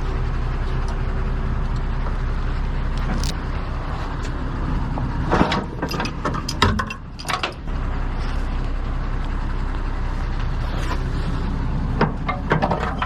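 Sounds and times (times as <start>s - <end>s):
truck engine running: 0.0s - 13.0s
metallic clicks and clanks: 5.3s - 7.7s.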